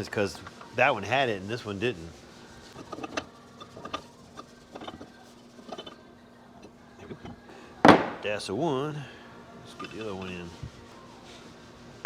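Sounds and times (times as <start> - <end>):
metal parts and tools clicking: 2.8 - 6.0
sharp knock: 7.9 - 8.2.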